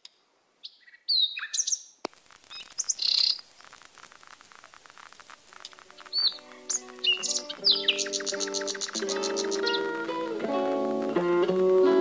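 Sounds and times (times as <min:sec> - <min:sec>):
birds chirping and whistling: 0:00.7 - 0:01.9, 0:02.5 - 0:03.4, 0:06.0 - 0:11.0
faint clicks: 0:02.0 - 0:12.0.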